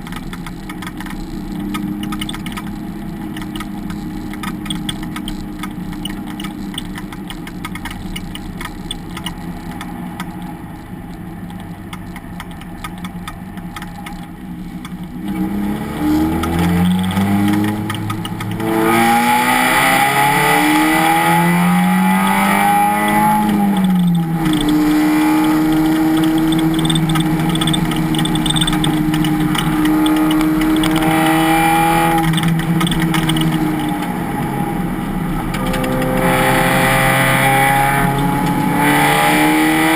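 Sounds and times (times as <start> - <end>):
race car engine accelerating: 15.2 - 39.9.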